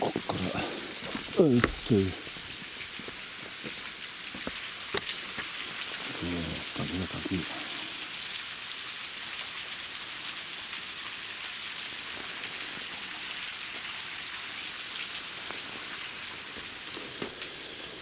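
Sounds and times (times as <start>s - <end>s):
waterfall rushing: 0.0s - 2.6s, 5.2s - 8.2s.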